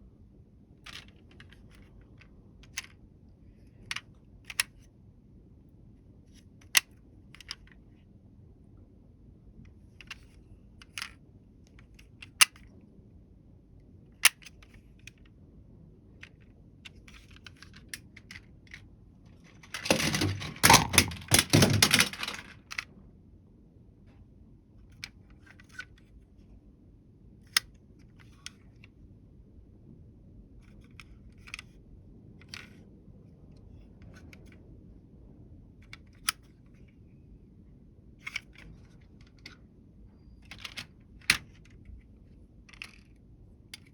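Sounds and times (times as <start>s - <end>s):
toy vehicles clicking and clattering: 19.4s - 22.9s.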